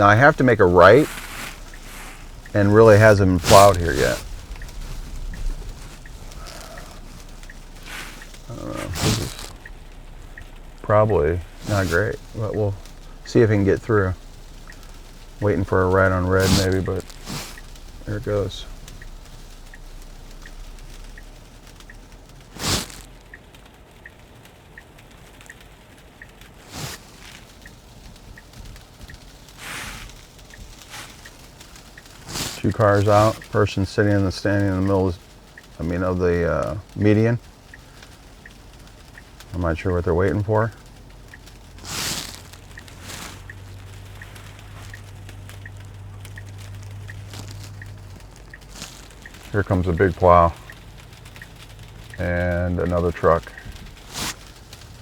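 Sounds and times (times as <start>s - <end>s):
low cabin hum: 0.0s - 23.3s, 25.4s - 55.0s
road noise: 0.0s - 55.0s
turn signal ticking: 0.0s - 55.0s
windshield wipers sweeping wet glass: 0.0s - 55.0s
brief swish: 3.4s - 9.6s.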